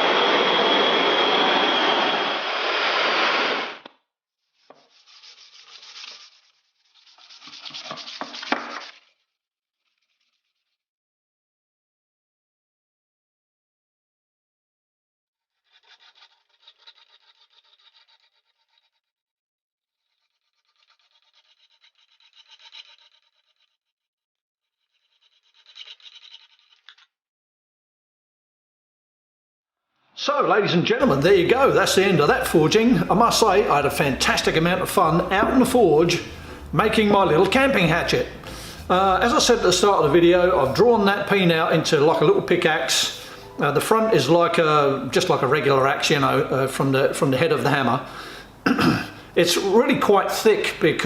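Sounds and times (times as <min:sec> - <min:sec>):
power grinder whining: 0:00.0 - 0:03.9
hand scraping strokes: 0:04.6 - 0:09.2, 0:31.5 - 0:41.2
abrasive rubbing: 0:31.0 - 0:42.0.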